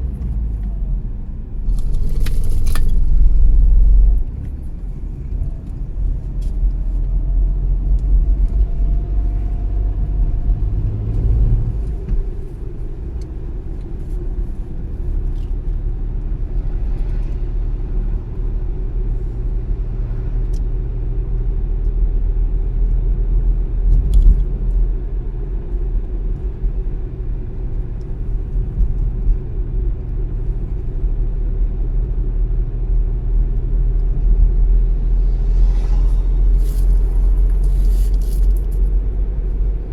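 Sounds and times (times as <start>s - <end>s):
car engine and tyres rumbling: 0.0s - 39.9s
faint rising whine: 34.4s - 38.2s.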